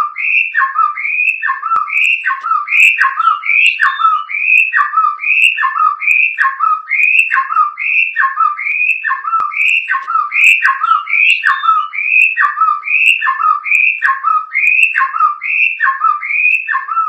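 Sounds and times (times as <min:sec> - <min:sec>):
songbird whistling repeated phrase: 0:00.0 - 0:17.0.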